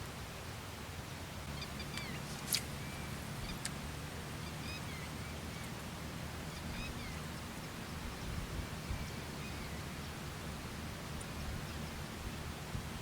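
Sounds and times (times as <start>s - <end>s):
background hiss: 0.0s - 13.0s
faint bird chirps: 1.5s - 10.2s.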